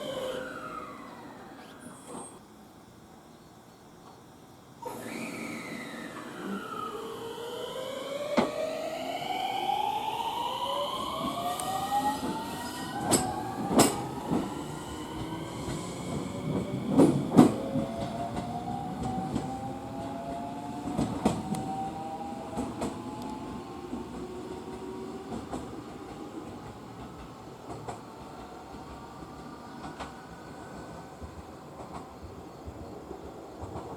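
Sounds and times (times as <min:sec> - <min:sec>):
electric train motor whine: 0:00.0 - 0:03.2, 0:04.4 - 0:31.2
wheels clacking over rail joints: 0:12.2 - 0:14.6.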